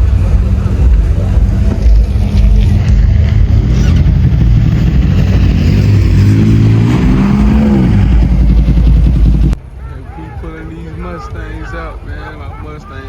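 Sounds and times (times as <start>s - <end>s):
vehicle engine revving: 0.0s - 9.6s.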